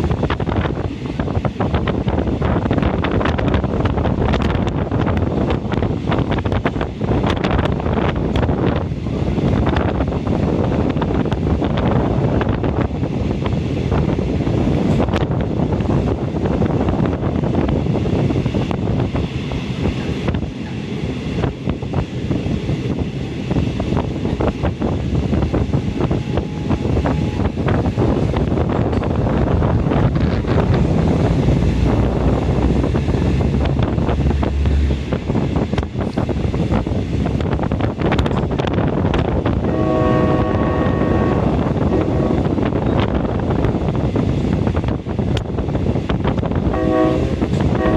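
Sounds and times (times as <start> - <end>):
train wheels rumbling on track: 0.0 - 47.9
wind buffeting microphone: 0.0 - 47.9
train horn: 39.6 - 42.7, 46.7 - 47.9.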